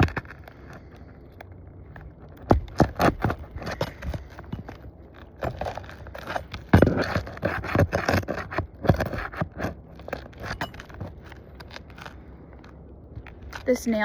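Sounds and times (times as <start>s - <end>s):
roof shingles scraping and knocking: 2.0s - 12.7s.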